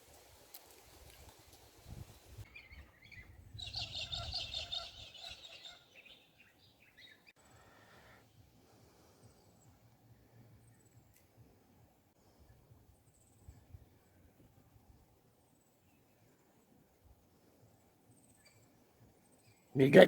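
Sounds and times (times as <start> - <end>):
bird chattering song: 2.5 - 7.3.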